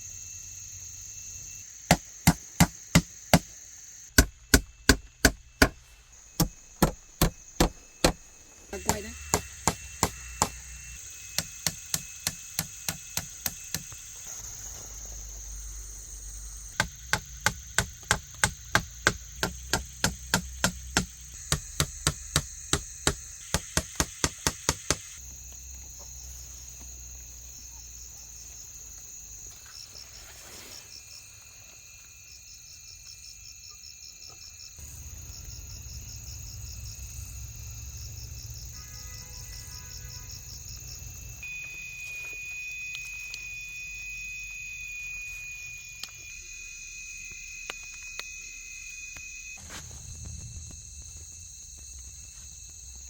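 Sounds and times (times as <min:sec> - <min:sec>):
insects chirping in pulses: 0:00.0 - 0:53.0
insects droning: 0:00.0 - 0:53.0
knife chopping: 0:06.4 - 0:08.2, 0:08.8 - 0:10.6.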